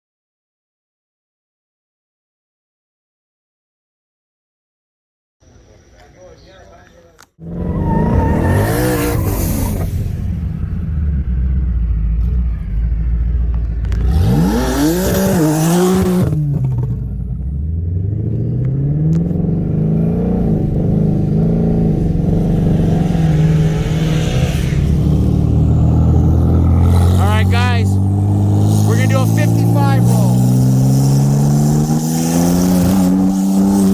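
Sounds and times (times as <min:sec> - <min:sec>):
car engine revving and accelerating: 0:07.4 - 0:33.9.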